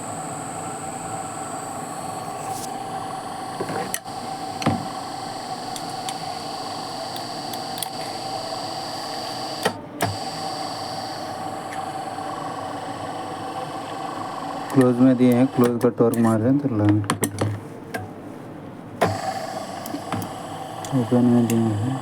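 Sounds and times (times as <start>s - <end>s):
high whine: 0.0s - 15.7s
motor and gearbox hum: 0.0s - 17.0s, 19.0s - 22.0s.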